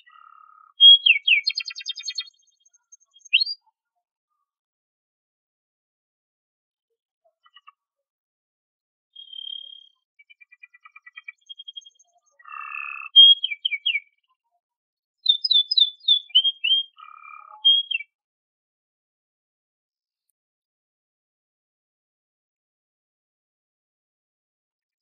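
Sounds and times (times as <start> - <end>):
canary singing: 0.0 - 3.6, 9.2 - 14.2, 15.2 - 18.1.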